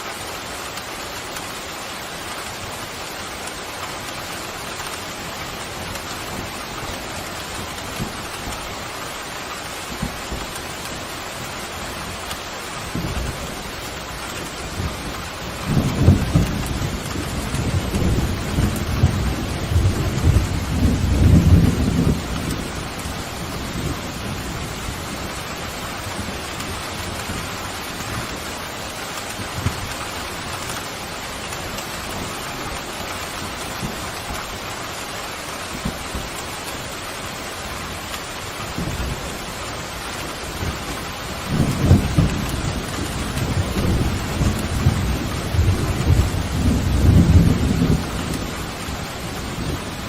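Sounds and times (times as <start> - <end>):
heavy rain: 0.0 - 50.0
thunder rumbling: 12.8 - 28.4, 38.5 - 50.0.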